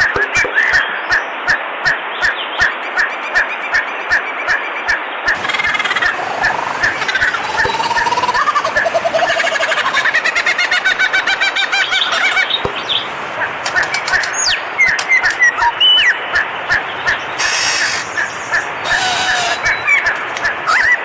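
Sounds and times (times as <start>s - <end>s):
whistled gliding notes: 2.4s - 21.0s
birds chirping: 5.3s - 21.0s
rushing hissy noises: 5.4s - 20.8s.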